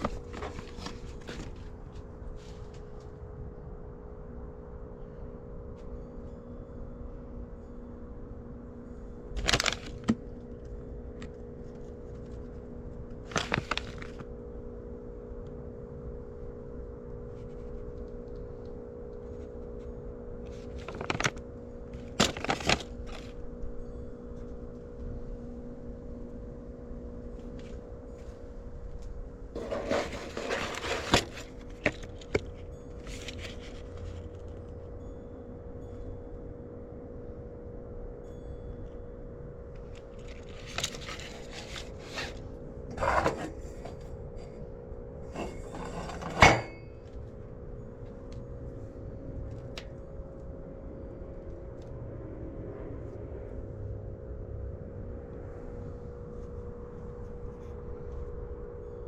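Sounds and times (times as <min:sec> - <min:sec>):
steady hum: 0:00.0 - 0:59.0
plastic crinkling and cracking: 0:09.4 - 0:10.2, 0:13.2 - 0:14.2, 0:20.6 - 0:21.4, 0:22.0 - 0:23.4.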